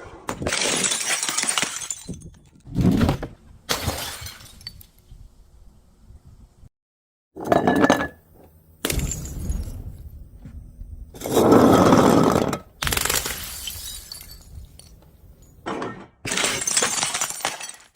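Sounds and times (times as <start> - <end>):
glass bottles shattering: 0.5 - 2.5, 3.7 - 4.8, 12.9 - 17.9.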